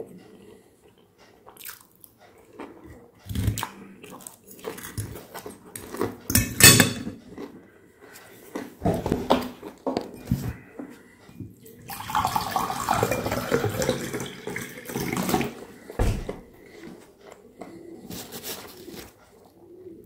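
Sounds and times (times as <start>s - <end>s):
wet chewing: 0.0s - 6.3s, 7.2s - 11.2s, 15.2s - 19.7s.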